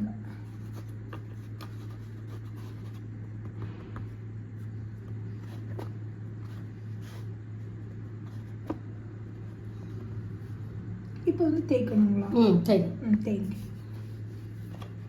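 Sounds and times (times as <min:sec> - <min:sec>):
steady low hum: 0:00.0 - 0:15.0
dough rubbing and scraping on board: 0:00.4 - 0:10.6.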